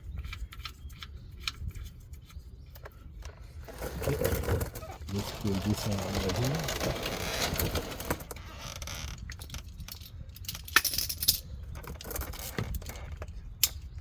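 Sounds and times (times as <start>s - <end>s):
scraping under car: 0.0s - 9.8s.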